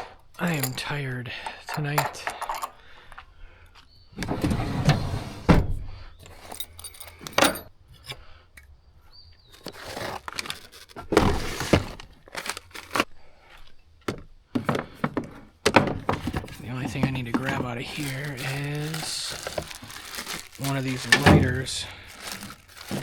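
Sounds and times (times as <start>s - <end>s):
camp gear clinking and clattering: 0.0s - 4.3s, 6.2s - 23.0s
rustling: 9.5s - 13.8s, 15.0s - 23.0s.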